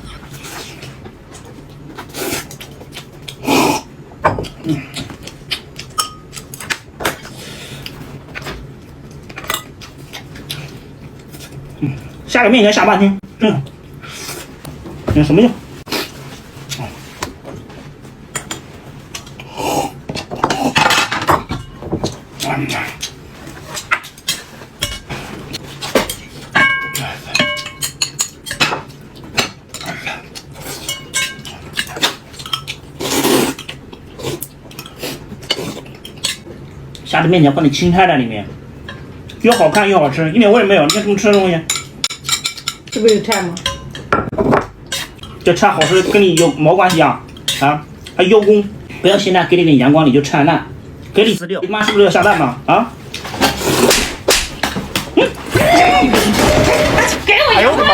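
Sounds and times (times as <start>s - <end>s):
dishes and pans clinking: 5.9s - 6.4s, 20.1s - 22.2s, 23.7s - 30.0s, 30.8s - 32.8s, 40.8s - 47.7s.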